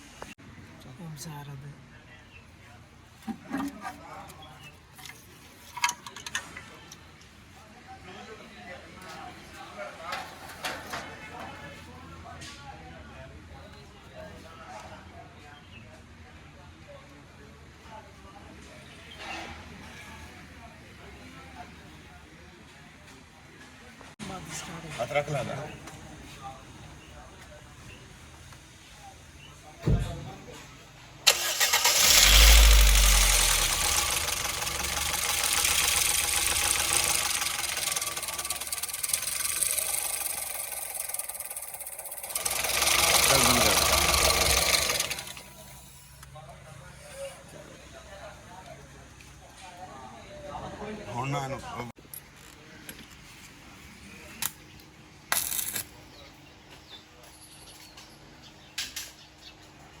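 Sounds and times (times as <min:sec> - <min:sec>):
car engine starting and idling: 0:31.3 - 0:39.9, 0:42.3 - 0:45.8
engine tappet clatter: 0:31.3 - 0:45.6.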